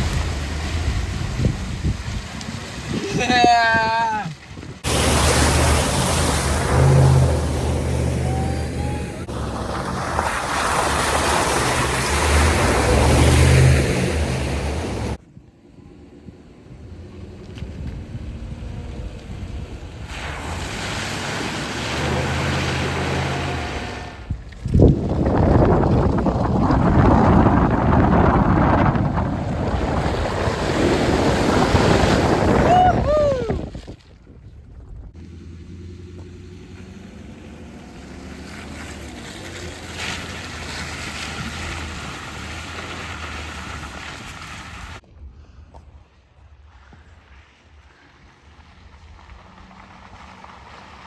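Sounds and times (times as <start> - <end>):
water splashing: 0.0 - 15.2, 19.3 - 45.0
vehicle engine under load: 4.4 - 32.7, 35.1 - 45.0.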